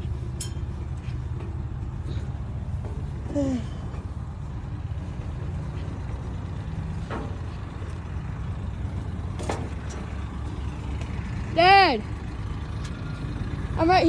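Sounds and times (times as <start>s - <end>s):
large vehicle engine idling: 0.0s - 14.0s.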